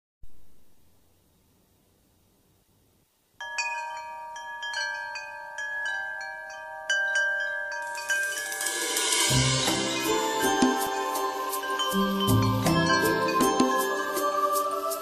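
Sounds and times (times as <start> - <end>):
ringing chime tones: 3.4 - 15.0.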